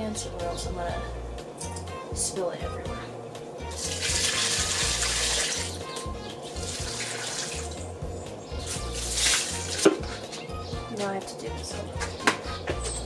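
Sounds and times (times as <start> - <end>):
water pouring onto plants: 3.8 - 5.7, 6.4 - 7.8, 9.0 - 10.1.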